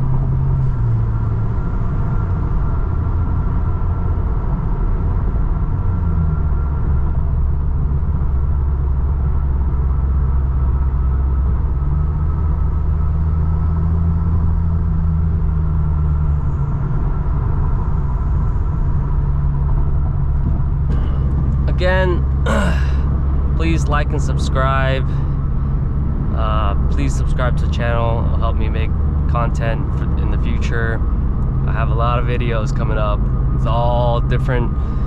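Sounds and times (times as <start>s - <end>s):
car engine droning: 0.0s - 35.0s
road noise: 0.0s - 35.0s.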